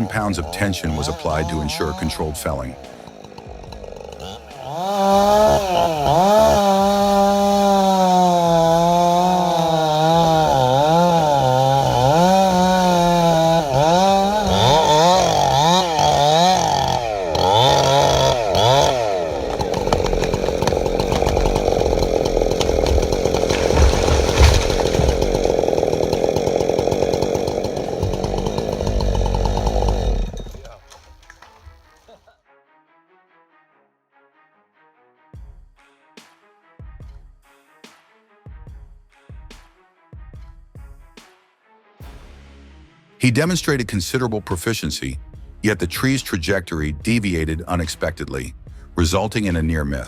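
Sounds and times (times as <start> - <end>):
chainsaw cutting wood: 0.0 - 32.0.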